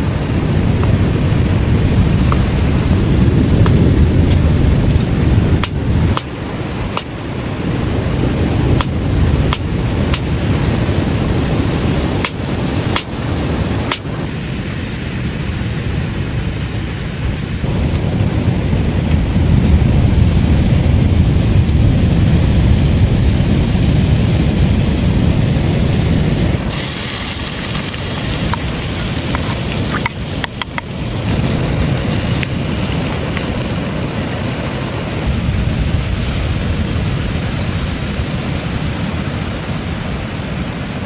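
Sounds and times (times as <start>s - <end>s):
waves rushing: 0.0s - 15.5s, 22.1s - 41.0s
bright hissing noise: 25.3s - 41.0s.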